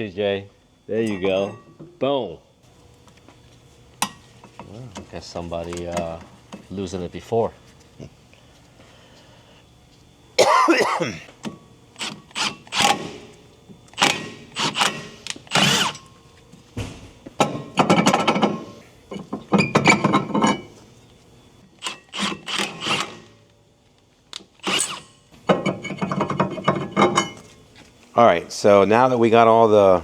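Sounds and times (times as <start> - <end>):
rattling clicking tool bursts: 13.9 - 16.1.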